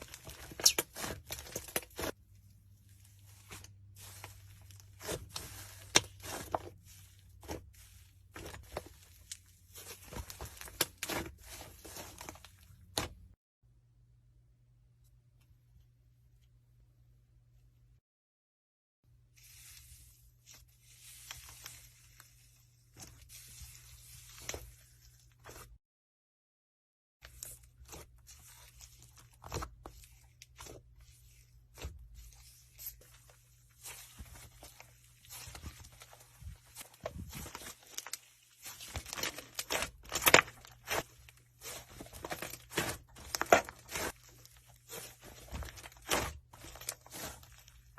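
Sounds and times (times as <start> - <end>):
slime crackling and squishing: 0.0 - 13.4, 27.3 - 47.9.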